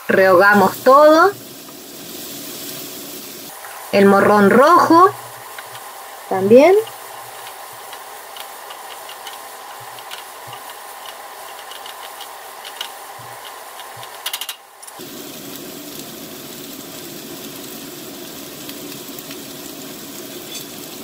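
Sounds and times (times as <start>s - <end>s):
vegetables sizzling in a pan: 0.0s - 21.0s
wooden spatula stirring: 6.8s - 14.2s.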